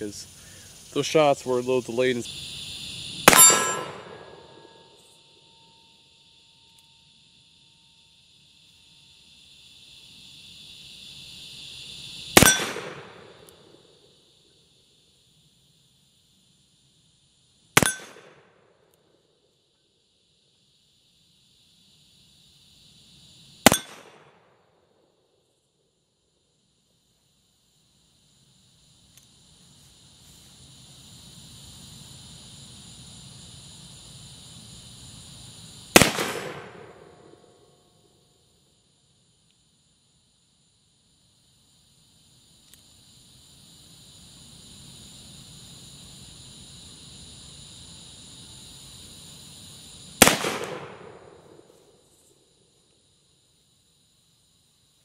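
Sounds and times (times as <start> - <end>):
crickets chirping: 0.0 - 55.0
insects buzzing: 0.0 - 55.0
revolver gunshot: 3.2 - 4.6, 12.4 - 13.5, 17.8 - 18.5, 23.6 - 24.4, 35.9 - 37.4, 50.2 - 51.6
revolver shot with echo: 3.3 - 4.4, 12.4 - 13.3
faint click: 29.1 - 29.3, 42.6 - 42.9.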